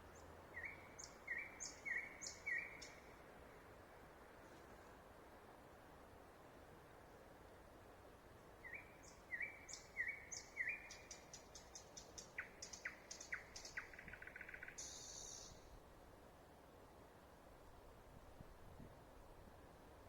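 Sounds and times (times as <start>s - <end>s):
songbird singing: 0.0s - 3.2s, 8.6s - 15.7s
steady background hiss: 0.0s - 20.0s.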